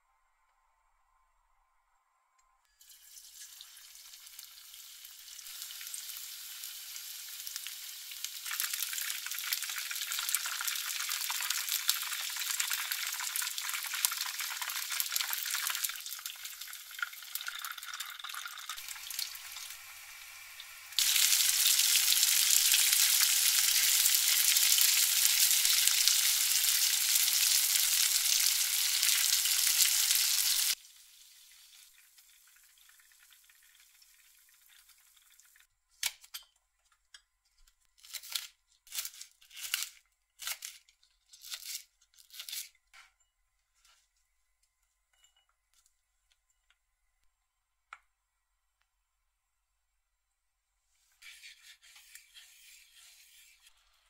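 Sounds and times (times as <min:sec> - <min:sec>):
chicken frying in hot oil: 0:02.8 - 0:35.7.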